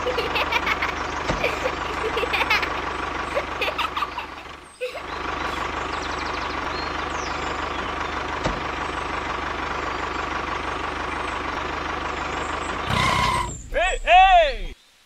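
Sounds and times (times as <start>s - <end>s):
toy tractor motor whining: 12.8s - 13.6s.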